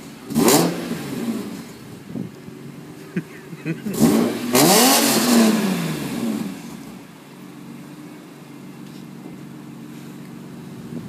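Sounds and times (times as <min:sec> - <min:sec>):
car engine revving and idling: 0:00.0 - 0:11.0.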